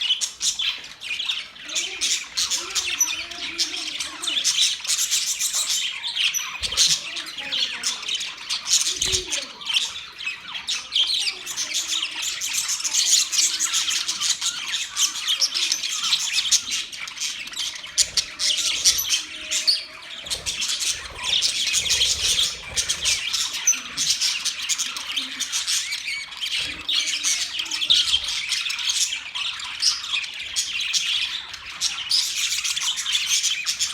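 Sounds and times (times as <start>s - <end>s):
budgerigars chirping and chattering: 0.0s - 33.9s.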